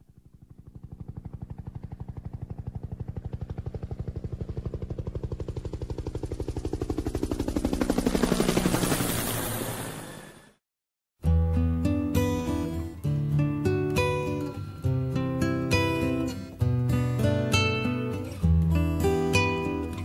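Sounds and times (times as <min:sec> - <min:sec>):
helicopter rotor beating: 0:00.0 - 0:10.6.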